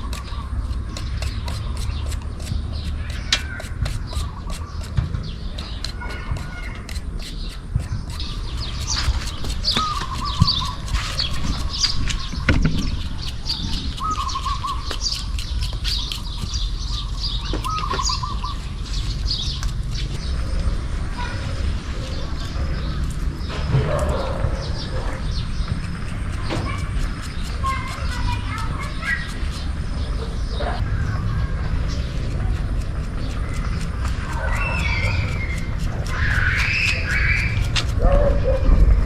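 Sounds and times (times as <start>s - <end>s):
small birds chirping and trilling: 0.0s - 39.0s
low rumble: 29.6s - 39.0s.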